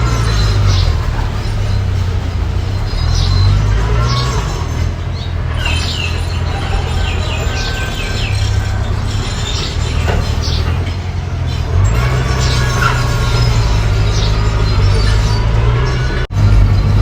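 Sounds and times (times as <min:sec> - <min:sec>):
bulldozer engine rumbling: 0:00.0 - 0:17.0
high squeaks: 0:00.0 - 0:17.0.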